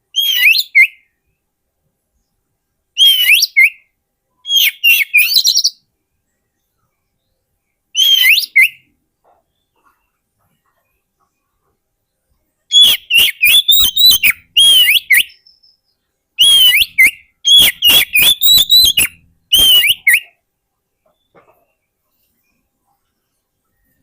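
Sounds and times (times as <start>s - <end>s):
songbird whistling song: 0.1s - 1.4s, 3.0s - 5.9s, 6.6s - 10.2s, 12.7s - 20.4s.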